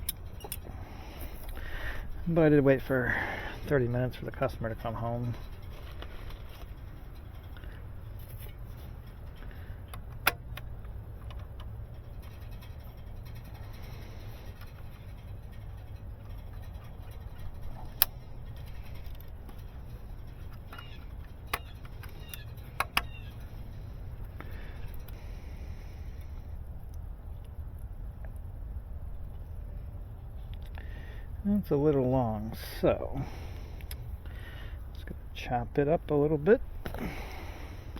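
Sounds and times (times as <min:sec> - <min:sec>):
steady low rumble: 0:00.0 - 0:37.9.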